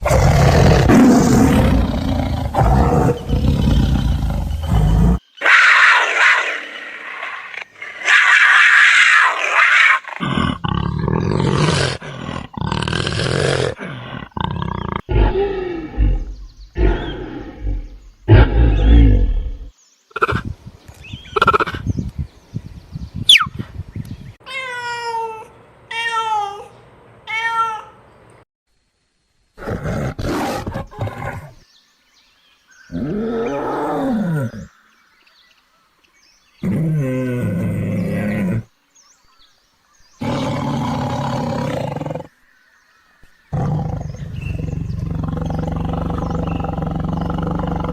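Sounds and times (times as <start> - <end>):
big cat deep grunting: 0.0 - 5.2, 10.2 - 20.5, 43.5 - 47.9
big cat hissing: 0.0 - 19.5, 43.5 - 47.9
big cat roars and growls: 0.0 - 20.4, 29.6 - 31.6, 32.9 - 34.8, 36.6 - 38.7, 40.2 - 42.4, 43.5 - 47.9.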